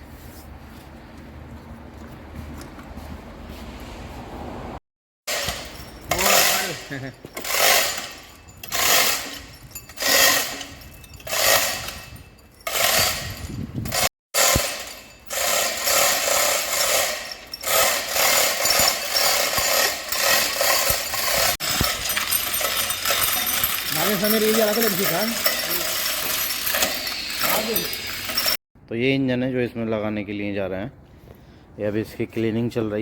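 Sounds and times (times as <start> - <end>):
ratcheting strokes: 5.3 - 6.8, 7.4 - 28.6
tool and workshop noise: 5.3 - 28.6.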